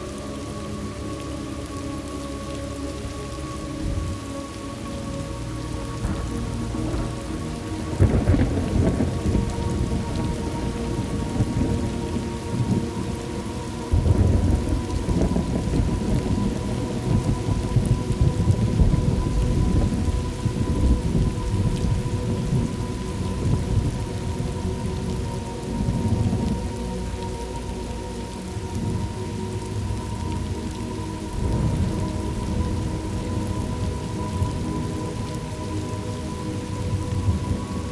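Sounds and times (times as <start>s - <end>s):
steady rain: 0.0s - 37.9s
rolling thunder: 6.0s - 13.2s, 13.9s - 25.2s.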